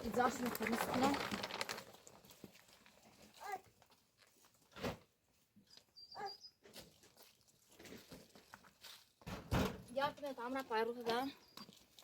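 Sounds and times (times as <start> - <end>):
faint animal cries: 6.0 - 6.6.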